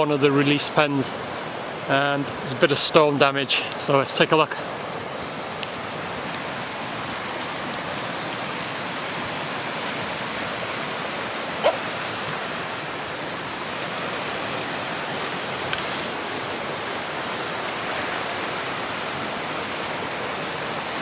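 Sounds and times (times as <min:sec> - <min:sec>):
rushing river water: 0:00.0 - 0:21.0
animal call: 0:11.6 - 0:11.9.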